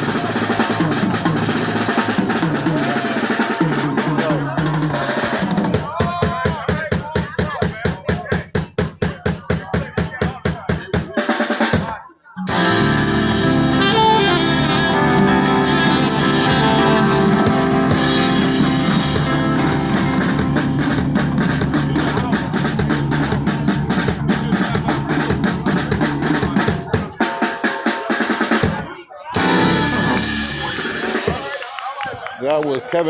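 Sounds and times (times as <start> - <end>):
horn lines: 0.0 - 6.2, 12.4 - 28.6, 29.4 - 31.8
live band playing: 0.0 - 6.2, 12.4 - 32.1
drum kit beat: 0.0 - 32.2.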